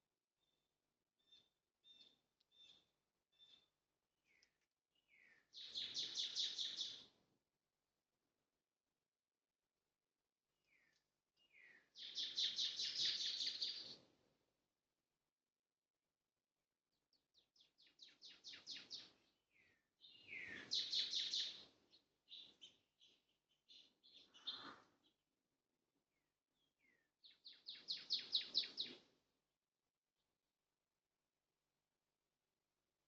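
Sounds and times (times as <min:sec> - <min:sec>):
bird chirping: 0:00.4 - 0:07.1, 0:10.6 - 0:14.0, 0:17.1 - 0:25.4, 0:26.1 - 0:29.1.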